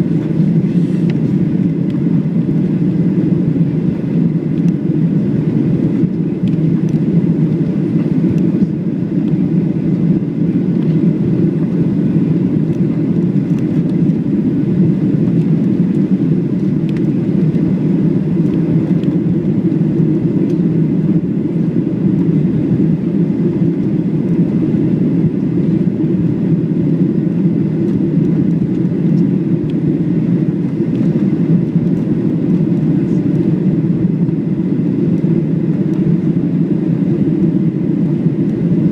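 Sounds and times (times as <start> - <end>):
jet engine drone in cabin: 0.0 - 38.9.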